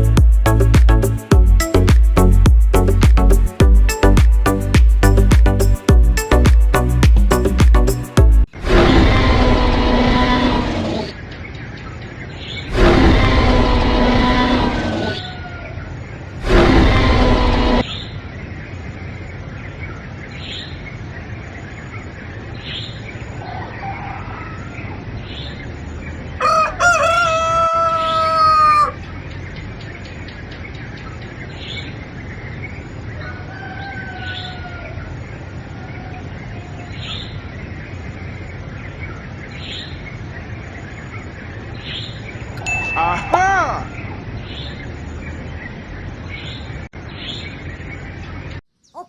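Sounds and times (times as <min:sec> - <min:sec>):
rooster crowing: 0:14.2 - 0:15.9, 0:23.4 - 0:24.8, 0:26.4 - 0:29.1, 0:33.2 - 0:35.1.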